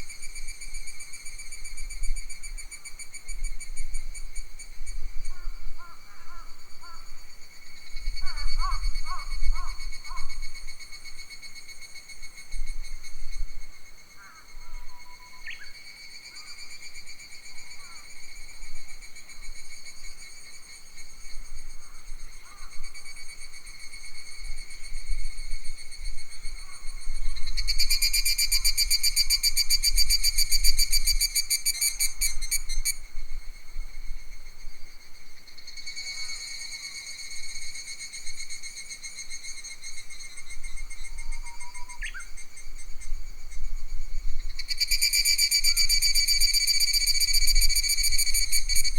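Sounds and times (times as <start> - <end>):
insects buzzing and trilling: 0.0 - 48.9
wind rumble on microphone: 40.4 - 44.8.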